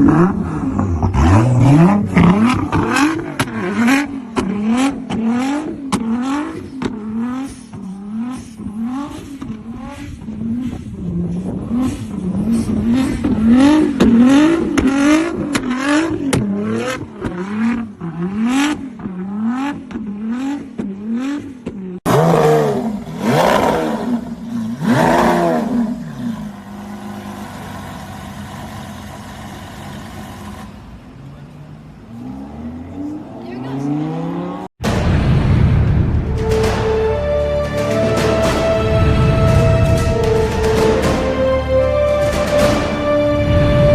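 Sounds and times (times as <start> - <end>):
exhaust cracks: 0.0 - 21.0, 34.8 - 43.9
sports car engine revving: 0.0 - 30.8.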